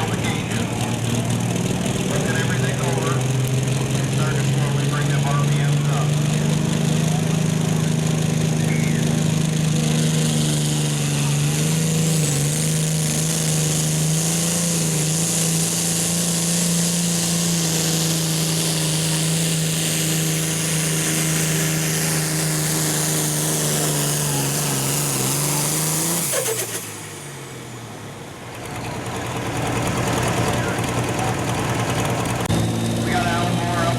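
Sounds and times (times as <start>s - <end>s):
diesel tractor engine at full power: 0.0s - 33.9s
turbo whine: 7.1s - 16.4s, 30.4s - 33.9s.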